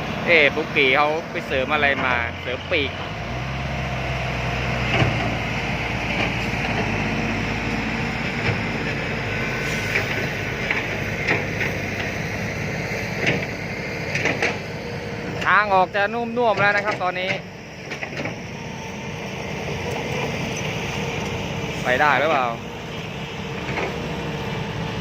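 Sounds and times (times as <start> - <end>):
diesel engine humming: 0.0 - 25.0
short engine knocks: 4.9 - 5.4, 9.9 - 12.2, 13.2 - 14.6, 16.5 - 18.4.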